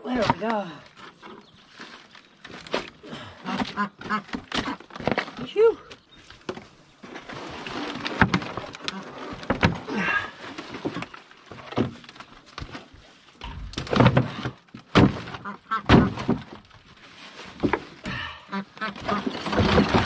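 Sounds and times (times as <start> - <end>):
plastic tub thudding and cracking: 2.4 - 5.6, 6.4 - 10.0, 10.7 - 16.8, 19.0 - 20.0.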